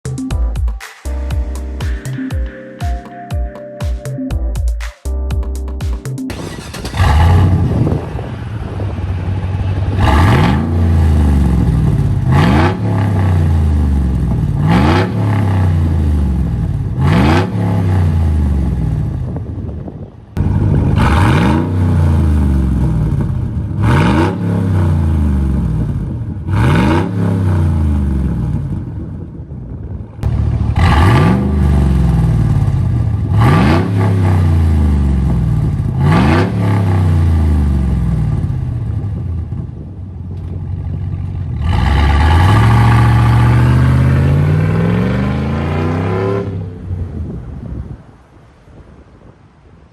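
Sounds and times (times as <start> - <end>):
engine revving: 6.3 - 19.2, 20.4 - 28.9, 30.2 - 39.0, 41.4 - 46.8.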